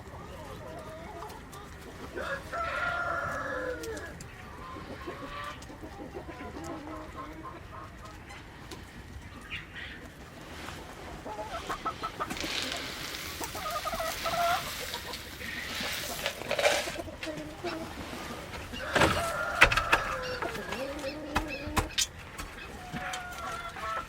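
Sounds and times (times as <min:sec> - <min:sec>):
chickens clucking: 0:00.0 - 0:24.0
hissing rustle: 0:10.2 - 0:21.2.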